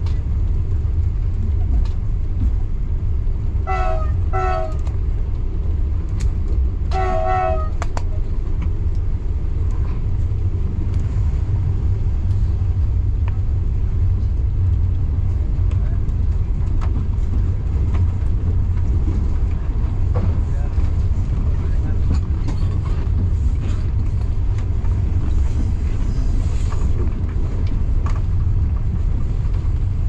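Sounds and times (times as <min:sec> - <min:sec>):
train rumbling: 0:00.0 - 0:30.0
train horn: 0:03.6 - 0:04.9, 0:06.9 - 0:07.9.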